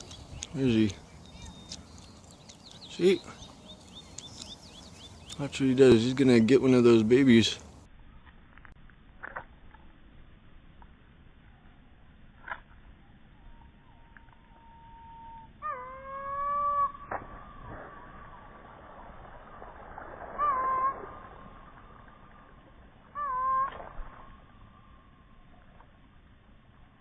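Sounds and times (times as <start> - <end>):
bird giving long calls: 0.0 - 5.9, 13.4 - 18.4, 20.2 - 22.4, 23.0 - 25.0.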